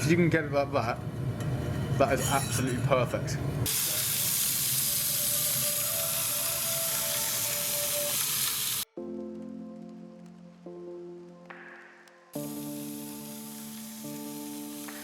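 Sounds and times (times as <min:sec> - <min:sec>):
belt grinder hissing on steel: 0:03.7 - 0:08.9, 0:12.4 - 0:15.0
background music: 0:04.6 - 0:15.0.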